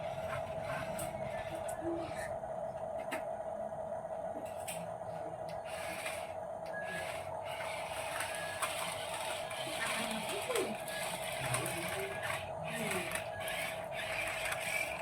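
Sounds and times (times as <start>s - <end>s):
toy truck motor whirring: 5.6s - 15.0s.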